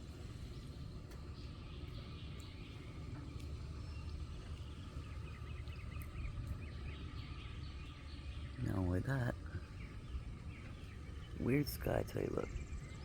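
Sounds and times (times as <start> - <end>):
birds chirping faintly: 0.3 - 13.0.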